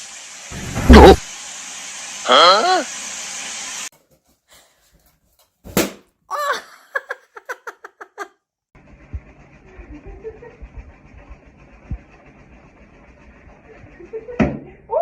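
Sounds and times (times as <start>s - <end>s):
sharp smack: 5.7s - 6.0s.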